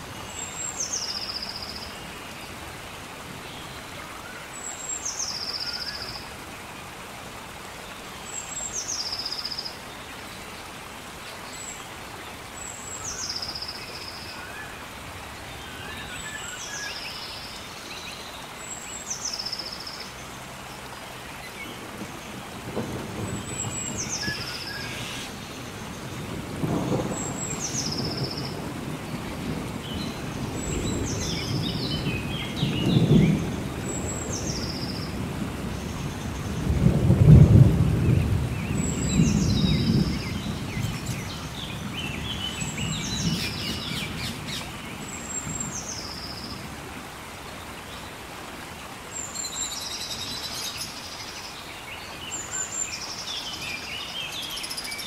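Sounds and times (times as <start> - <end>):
steady rain: 0.0 - 55.0
thunder rumbling: 25.6 - 34.5, 35.1 - 44.6.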